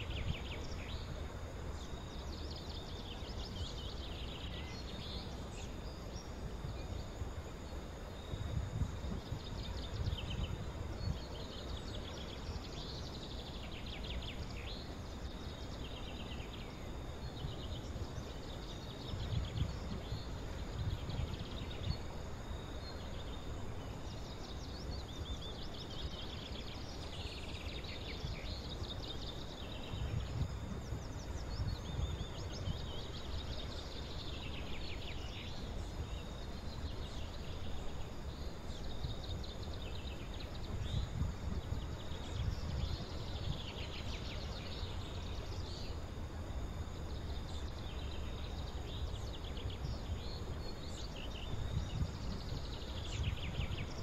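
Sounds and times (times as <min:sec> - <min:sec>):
small birds chirping: 0:00.0 - 0:54.0
wind rumbling on microphone: 0:00.0 - 0:54.0.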